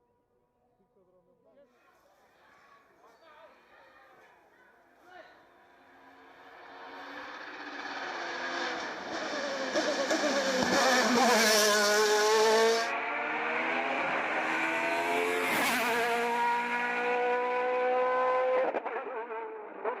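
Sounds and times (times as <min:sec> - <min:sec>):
race car engine at full throttle: 0:05.7 - 0:20.0.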